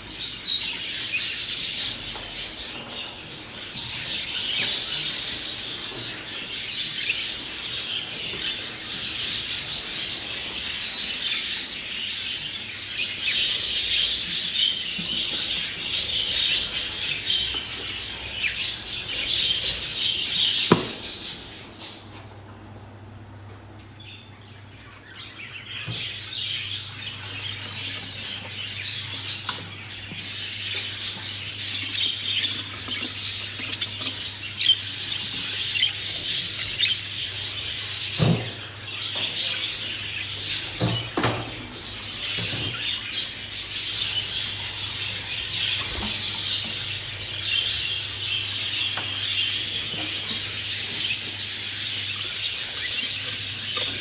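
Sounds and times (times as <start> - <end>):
budgerigars chattering: 24.1 - 54.0.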